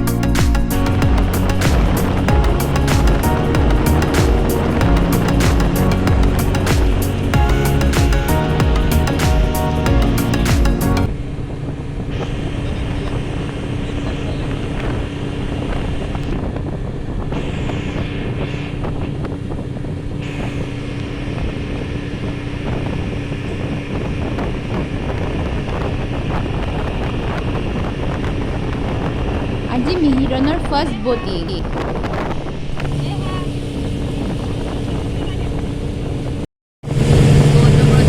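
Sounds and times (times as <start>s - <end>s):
background music: 0.0s - 11.1s
motorboat engine humming: 0.0s - 38.0s
wind on microphone: 0.0s - 38.0s.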